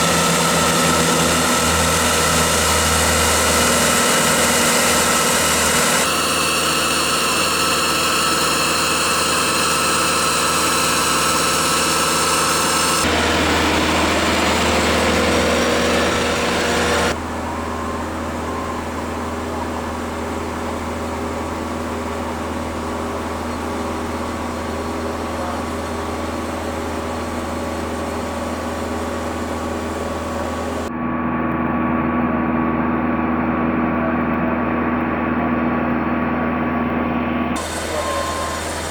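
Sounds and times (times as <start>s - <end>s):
aircraft engine whine and hum: 0.0s - 38.9s.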